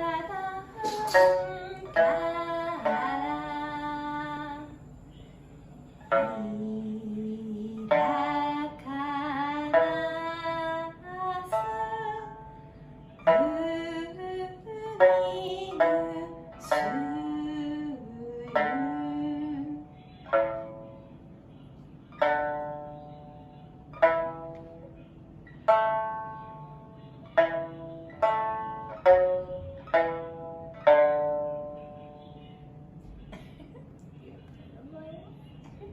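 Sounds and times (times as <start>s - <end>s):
person singing: 0.0s - 4.8s, 6.1s - 12.6s, 13.2s - 20.8s
plucked string instrument melody: 0.0s - 5.2s, 5.8s - 34.2s.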